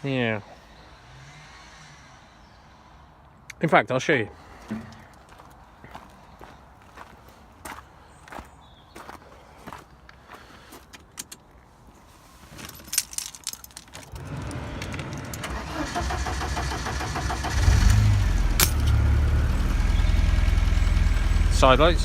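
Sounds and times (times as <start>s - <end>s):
keys clinking: 12.6s - 14.2s
car engine starting and idling: 14.0s - 22.0s.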